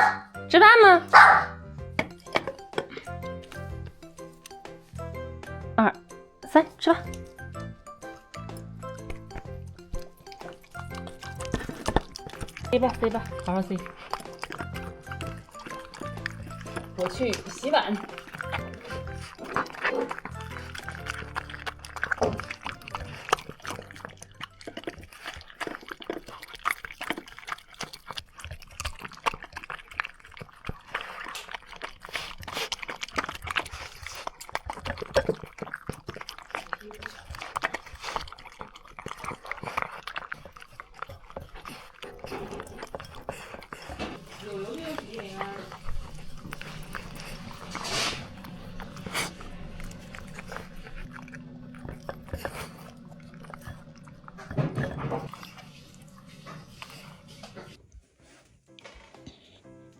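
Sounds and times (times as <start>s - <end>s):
chewing and crunching: 0.0s - 59.6s
dishes clinking: 53.3s - 55.7s.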